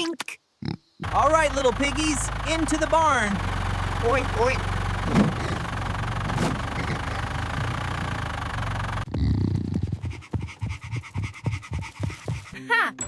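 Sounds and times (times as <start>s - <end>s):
vehicle engine idling: 1.0s - 9.1s.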